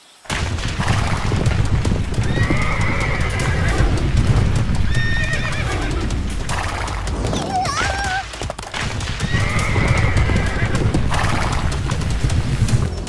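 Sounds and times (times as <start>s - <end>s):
horses galloping hoofbeats: 0.3s - 13.0s
horse whinnying: 2.2s - 4.0s, 4.9s - 6.1s, 9.2s - 11.6s.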